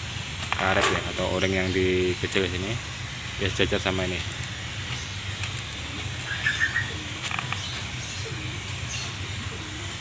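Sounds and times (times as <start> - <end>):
steady low hum: 0.0 - 10.0
bird chirps: 4.9 - 9.8.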